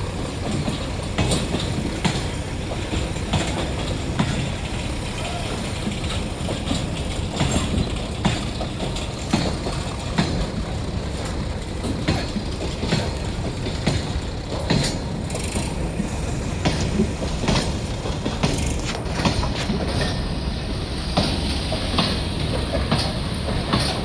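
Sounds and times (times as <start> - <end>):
train rumble: 0.0 - 24.0
train wheels knocking on rail joints: 0.0 - 24.0.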